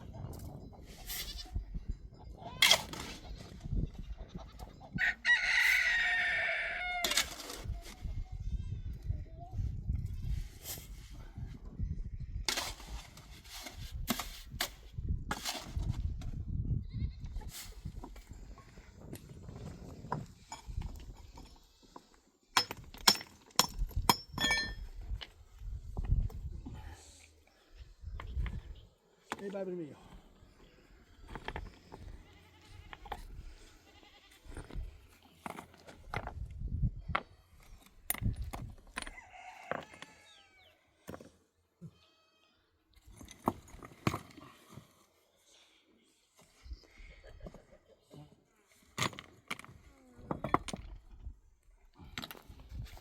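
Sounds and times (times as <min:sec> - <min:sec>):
rooster crowing: 0:05.0 - 0:07.1, 0:39.1 - 0:40.7
sharp clinks and knocks: 0:22.6 - 0:25.0.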